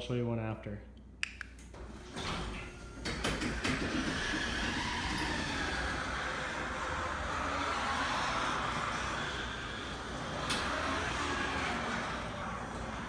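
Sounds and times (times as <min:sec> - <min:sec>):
garage door clicks: 0:01.6 - 0:07.2
garage door rattling rumble: 0:01.7 - 0:13.0.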